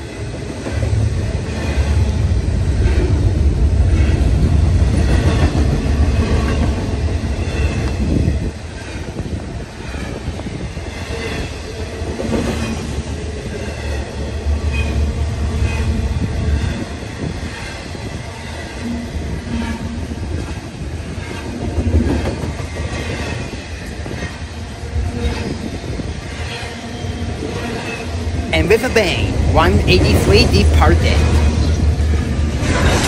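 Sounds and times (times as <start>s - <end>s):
train wheels rumbling on rail: 0.0s - 28.5s, 31.2s - 33.0s.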